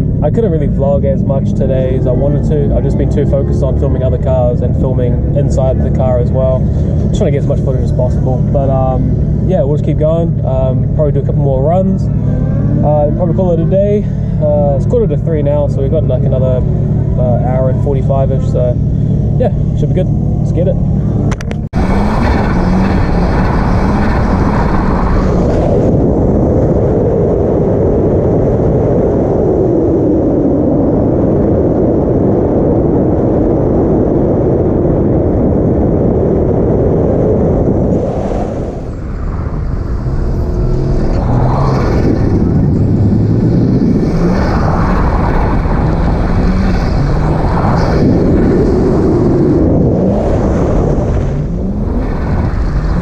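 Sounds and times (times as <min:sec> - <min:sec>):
wind and road noise: 0:00.0 - 0:53.0
car engine revving hard: 0:00.5 - 0:26.0, 0:37.6 - 0:53.0.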